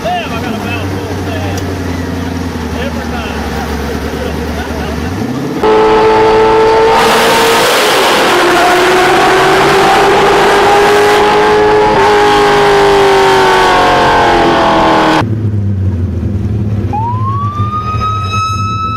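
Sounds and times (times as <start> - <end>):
engine revving high: 2.2 - 15.2.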